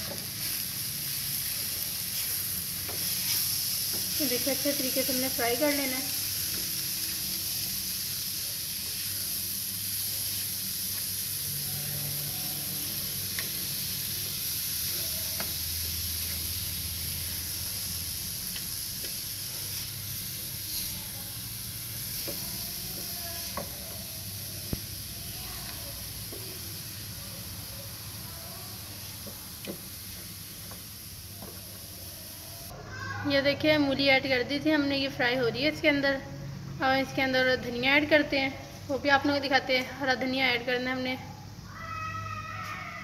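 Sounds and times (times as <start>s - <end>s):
spatula scraping a pan: 0.0s - 5.0s, 20.6s - 21.2s
food sizzling in oil: 0.0s - 35.8s.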